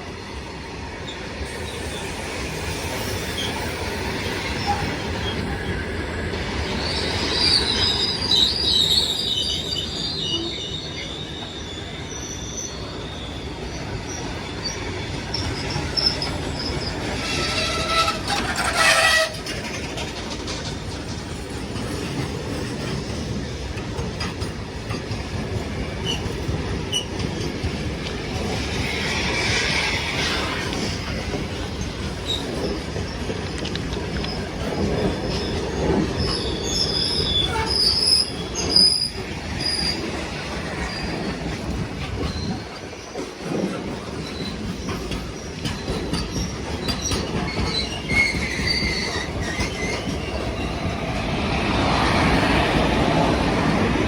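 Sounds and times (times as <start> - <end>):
train wagons rumbling: 0.0 - 54.0
high wheel squeal: 6.7 - 19.9, 34.3 - 41.3, 44.2 - 51.2.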